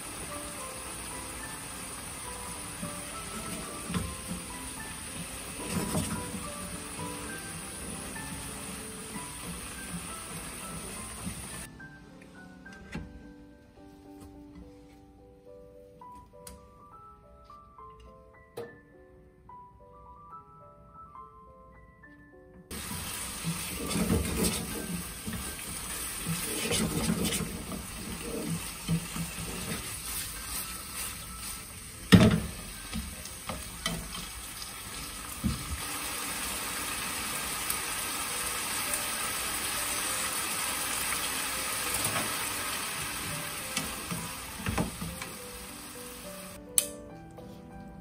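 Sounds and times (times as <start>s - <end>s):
food sizzling in frying pan: 0.0s - 11.7s, 22.7s - 46.6s
pan and utensil thumps: 22.8s - 29.9s, 32.1s - 34.3s.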